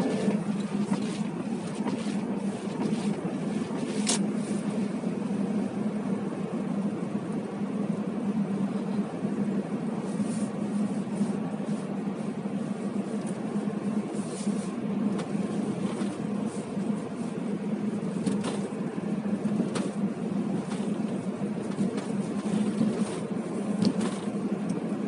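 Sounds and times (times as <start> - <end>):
car engine idling: 0.0 - 25.0
heater fan hum: 0.0 - 25.0.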